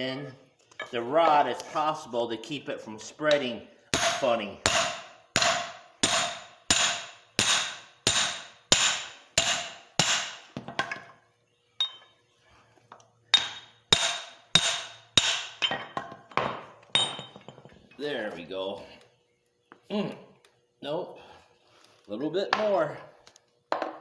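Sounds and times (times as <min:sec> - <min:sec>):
hammer striking steel wedge: 0:04.0 - 0:10.4, 0:13.4 - 0:15.6.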